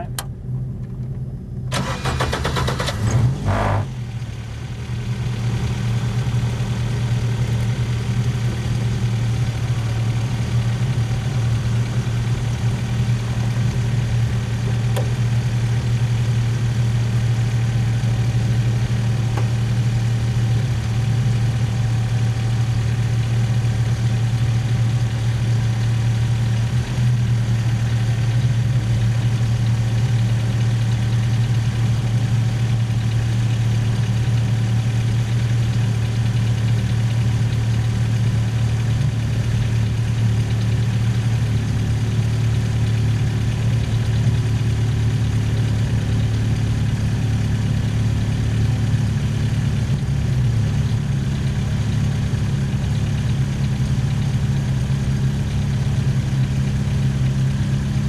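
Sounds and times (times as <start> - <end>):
racing car engine idling: 0.0 - 58.0
starter motor cranking: 1.7 - 3.3.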